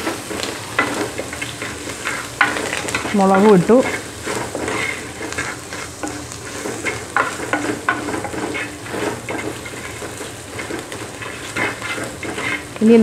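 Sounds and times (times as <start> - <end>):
food sizzling in hot oil: 0.0 - 13.0
ladle scraping a clay pot: 0.3 - 13.0.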